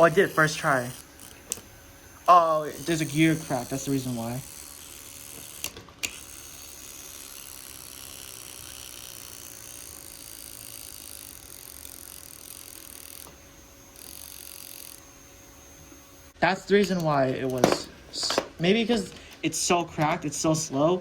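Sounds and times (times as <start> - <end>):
toy motor and gearbox whirring: 0.0 - 20.1.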